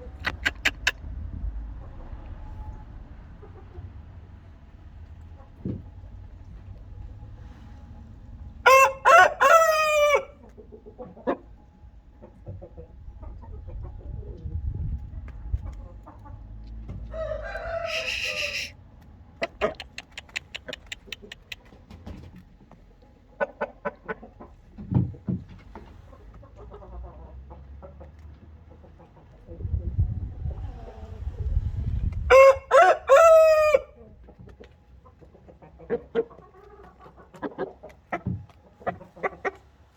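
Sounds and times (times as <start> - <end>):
rooster crowing: 8.6 - 10.4, 17.0 - 18.7, 32.3 - 34.0.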